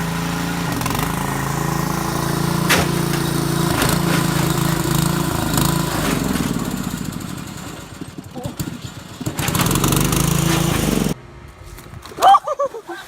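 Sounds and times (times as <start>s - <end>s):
small engine running: 0.0s - 11.2s
sharp knocks: 2.6s - 6.6s.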